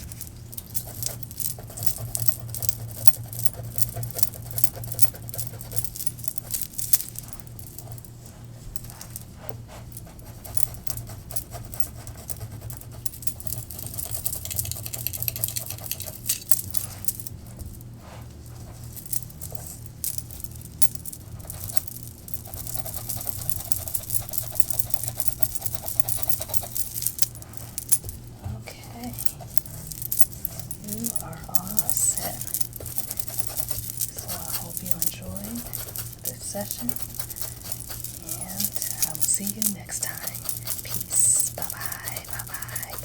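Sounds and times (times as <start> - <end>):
steady low hum: 0.0 - 43.0
fingers rubbing hair and scalp: 29.0 - 43.0.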